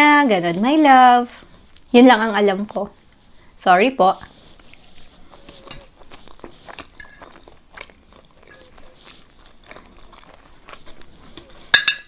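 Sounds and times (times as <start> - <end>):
person chewing food: 1.5 - 2.0, 2.7 - 3.6, 4.2 - 11.9.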